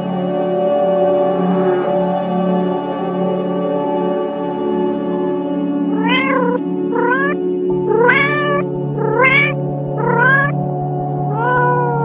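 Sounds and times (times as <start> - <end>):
ambient background music: 0.0 - 12.0
cat meowing: 6.0 - 10.6, 11.3 - 12.0.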